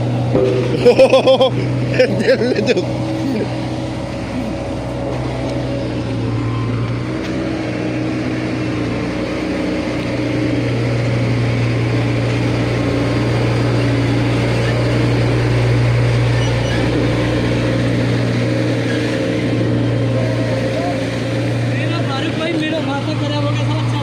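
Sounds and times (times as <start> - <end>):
road roller diesel engine: 0.0 - 24.0.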